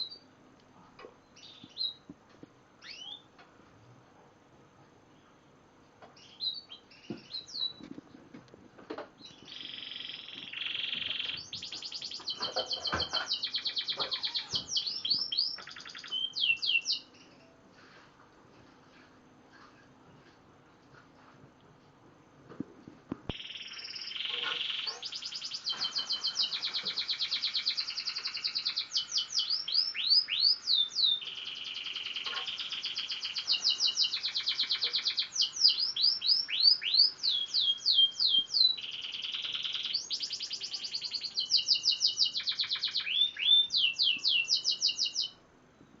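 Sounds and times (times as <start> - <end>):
canary singing trills: 1.2 - 2.1, 2.8 - 3.4, 6.2 - 7.8, 9.2 - 17.6, 23.3 - 45.4.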